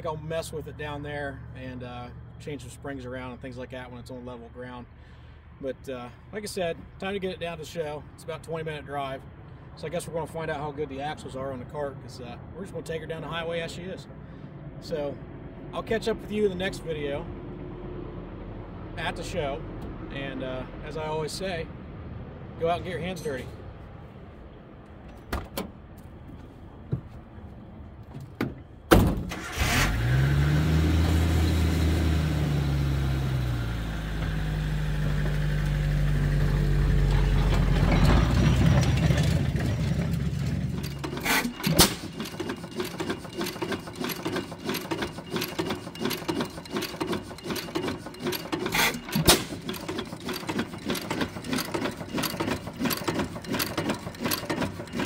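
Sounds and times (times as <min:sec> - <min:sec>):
car engine starting and running: 0:28.5 - 0:55.0
mechanical clicking and rattling: 0:39.1 - 0:55.0.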